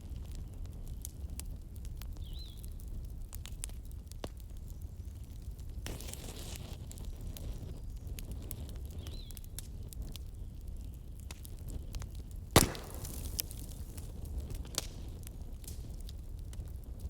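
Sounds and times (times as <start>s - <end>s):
bonfire crackling: 0.0s - 17.0s
loud sharp pop: 12.6s - 13.7s.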